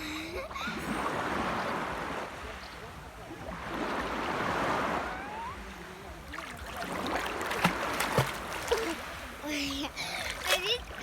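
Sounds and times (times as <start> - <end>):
small waves washing: 0.4 - 11.0
child splashing in water: 6.3 - 11.0.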